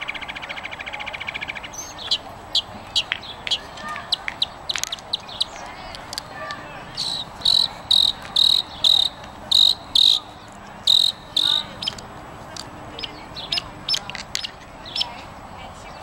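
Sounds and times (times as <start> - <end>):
songbird calling high notes: 0.0 - 12.0.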